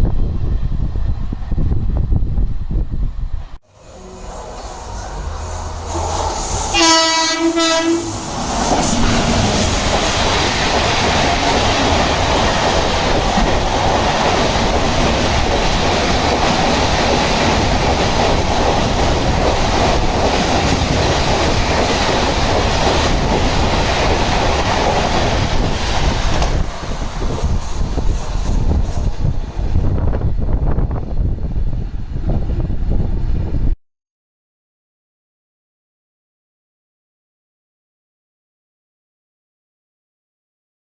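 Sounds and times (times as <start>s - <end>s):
train passing at speed: 0.0s - 33.7s
train horn blast: 3.6s - 9.2s
wheel clatter over rail joints: 8.4s - 29.8s.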